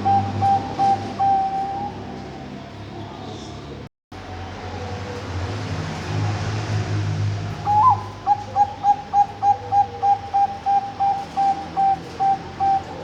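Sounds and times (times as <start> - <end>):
dove cooing: 0.0 - 2.5, 7.6 - 13.0.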